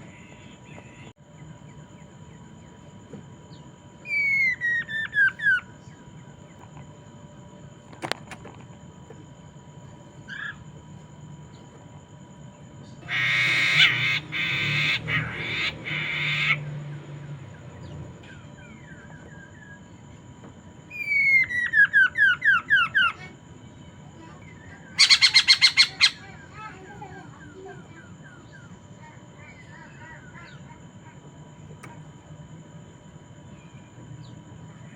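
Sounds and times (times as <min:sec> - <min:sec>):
bird harsh rasping chatter: 0:13.0 - 0:16.8, 0:24.6 - 0:26.7.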